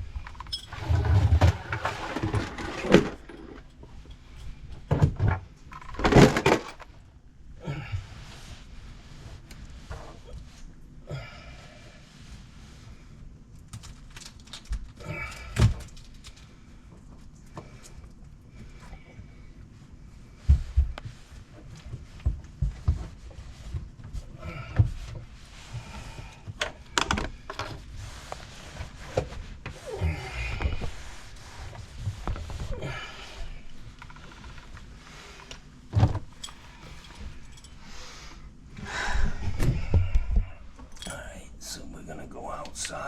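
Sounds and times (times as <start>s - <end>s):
knocks and clunks of plumbing parts: 0.0s - 7.0s, 20.5s - 27.8s, 35.4s - 37.8s.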